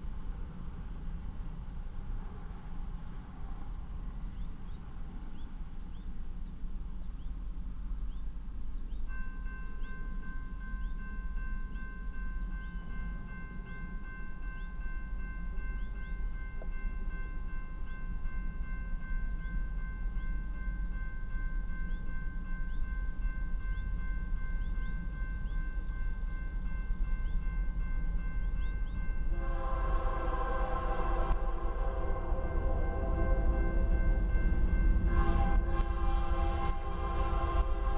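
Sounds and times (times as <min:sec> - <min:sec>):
freight train rumbling: 0:00.0 - 0:37.9
high-pitched ringing tones: 0:01.9 - 0:37.9
locomotive air horn chord: 0:29.3 - 0:37.9.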